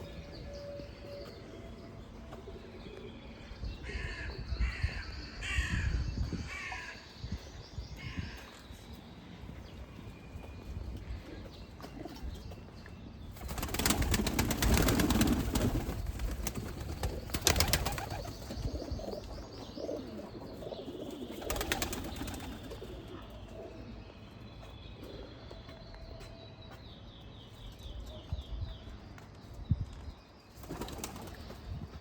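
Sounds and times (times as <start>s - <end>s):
pigeon wings flapping: 13.4s - 18.4s, 21.4s - 22.8s.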